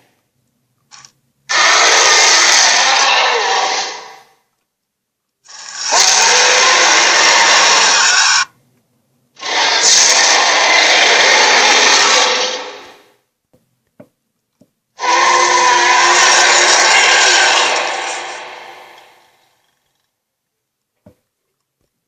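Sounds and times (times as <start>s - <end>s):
monster growl: 1.5s - 4.2s, 5.5s - 8.5s, 9.4s - 13.1s, 15.0s - 19.4s.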